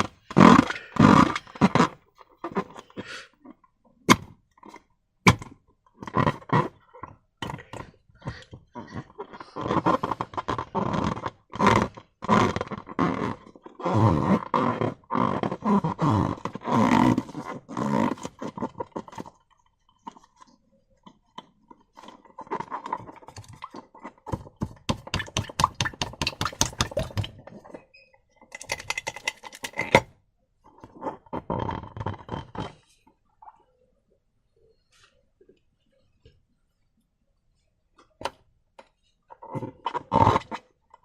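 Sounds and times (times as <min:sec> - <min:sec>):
slime squelching: 0:22.0 - 0:27.8, 0:28.4 - 0:30.0.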